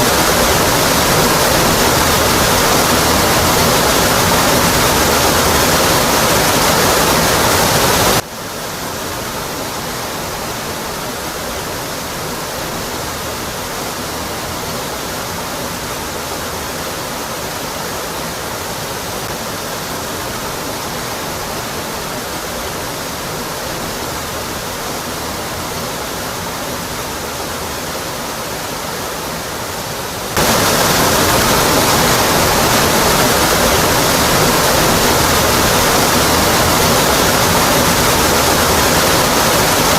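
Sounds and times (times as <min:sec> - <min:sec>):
waterfall crashing onto rock: 0:00.0 - 0:08.2, 0:30.1 - 0:39.9.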